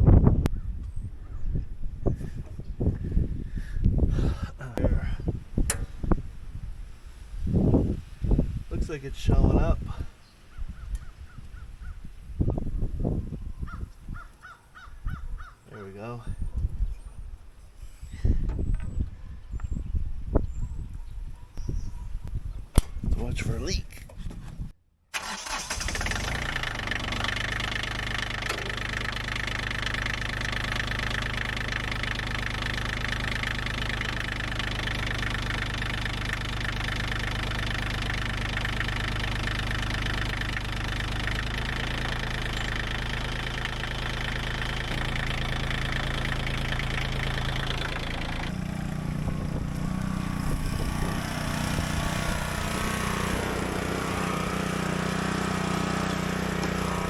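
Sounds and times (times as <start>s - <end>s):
tractor diesel engine running: 0.0s - 10.1s, 15.8s - 21.0s, 22.8s - 57.0s
low hum: 27.6s - 54.9s.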